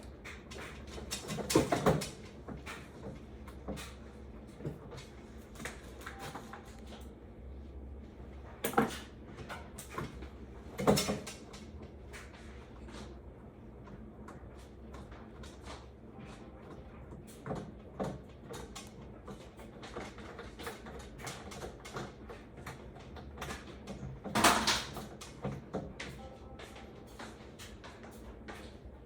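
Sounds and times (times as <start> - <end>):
clunks and knocks of parts: 0.3 - 4.0, 23.3 - 26.2.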